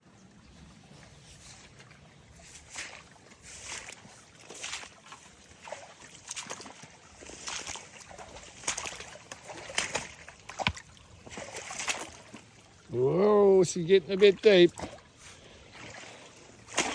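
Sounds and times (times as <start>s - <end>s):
boots sloshing through water: 0.0s - 16.9s.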